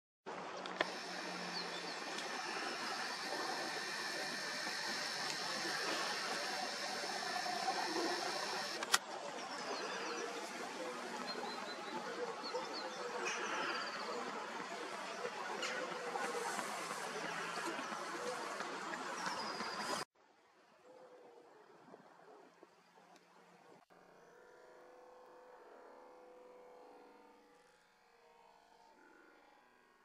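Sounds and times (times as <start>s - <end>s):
steady background noise: 0.3s - 20.0s
sharp click: 8.8s - 9.0s.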